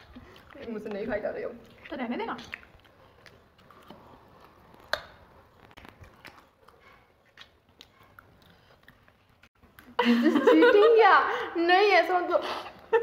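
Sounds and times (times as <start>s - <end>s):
quiet chewing of noodles: 0.0s - 10.0s.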